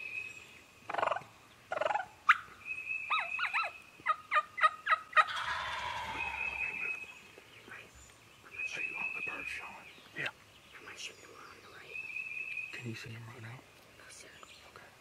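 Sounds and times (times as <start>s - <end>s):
wild turkeys calling: 0.0s - 13.0s
turkey gobble: 0.9s - 2.5s, 3.1s - 7.0s
turkey yelps dropping in pitch: 0.9s - 2.5s, 3.1s - 6.8s.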